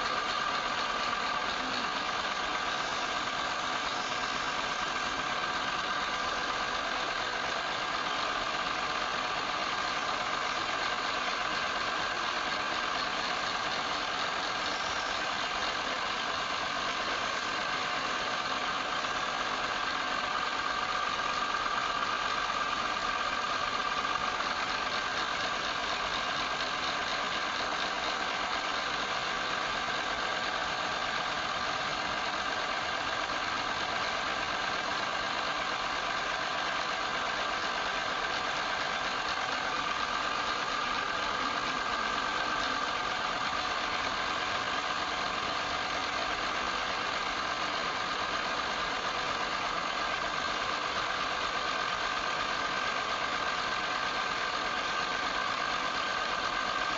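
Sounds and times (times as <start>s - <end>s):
wood lathe whining: 0.0s - 56.9s.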